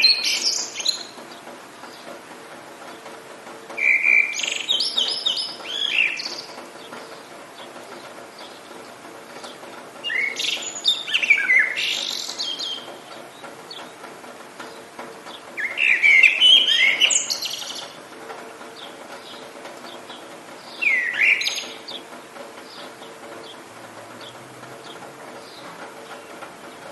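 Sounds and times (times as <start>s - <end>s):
songbird warbling: 0.0s - 1.2s, 3.8s - 7.2s, 10.0s - 13.0s, 15.6s - 18.0s, 20.7s - 22.0s.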